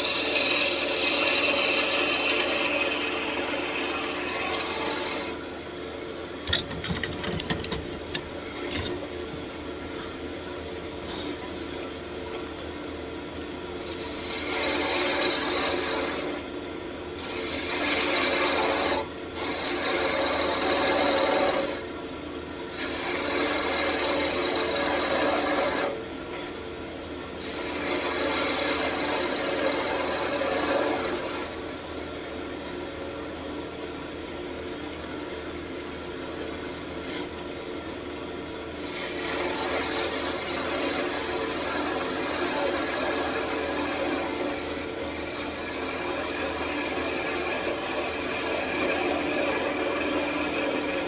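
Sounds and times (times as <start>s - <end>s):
turning tool scraping wood: 0.0s - 5.4s, 6.4s - 9.1s, 38.8s - 51.0s
wood lathe humming: 0.0s - 5.4s, 28.8s - 31.5s, 36.6s - 36.9s, 38.8s - 51.0s.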